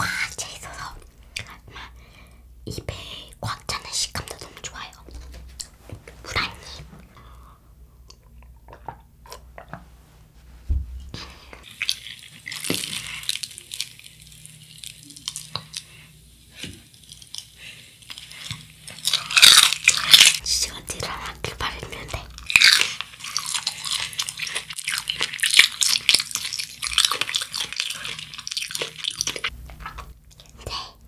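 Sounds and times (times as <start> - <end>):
dull thump: 10.6 - 11.2
chewing crunchy cheese stick: 11.6 - 16.0, 16.9 - 20.4, 22.3 - 30.6.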